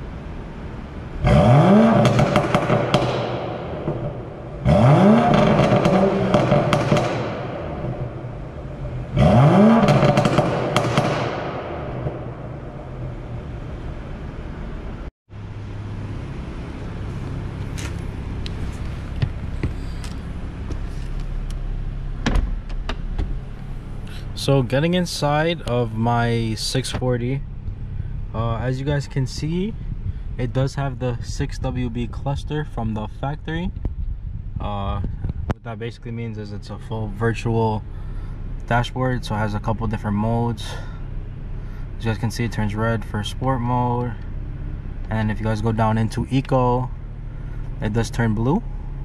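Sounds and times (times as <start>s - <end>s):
car engine idling: 0.0s - 49.0s
car engine revving: 0.0s - 49.0s
exhaust crackling pops: 1.2s - 13.6s, 16.8s - 28.3s, 28.9s - 37.2s.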